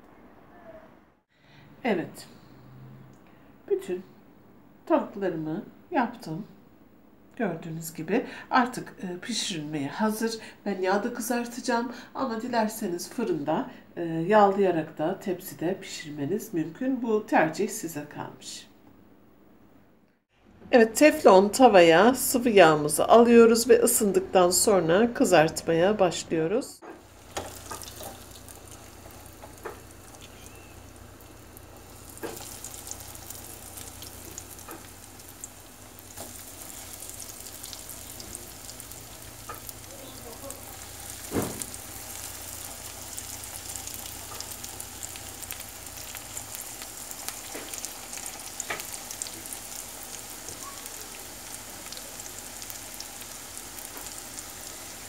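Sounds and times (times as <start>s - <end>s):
chicken deep-frying in oil: 26.9s - 55.0s.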